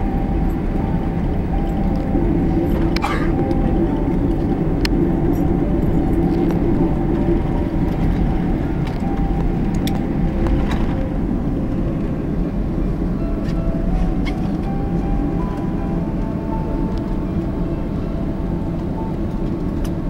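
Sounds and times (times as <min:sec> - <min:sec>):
faint steady whine: 0:00.0 - 0:20.0
jet engines rumbling: 0:00.0 - 0:20.0.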